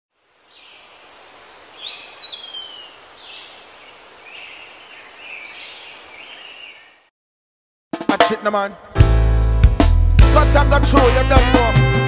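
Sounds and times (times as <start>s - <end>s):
outdoor hiss: 0.1s - 6.1s
birds calling: 0.5s - 7.1s.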